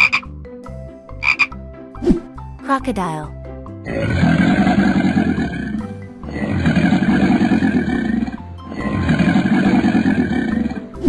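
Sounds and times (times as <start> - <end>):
background music: 0.0 - 11.0
crocodile roar growls: 3.8 - 11.0.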